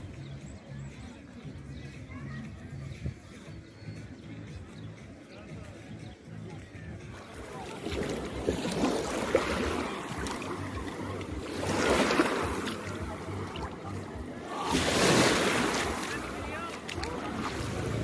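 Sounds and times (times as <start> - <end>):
small waves washing onto beach: 7.1 - 18.0
wind on microphone: 7.9 - 18.0.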